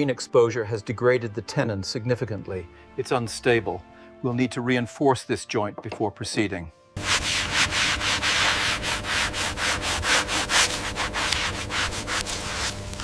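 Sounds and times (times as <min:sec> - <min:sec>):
hand sanding wood: 0:07.0 - 0:13.0.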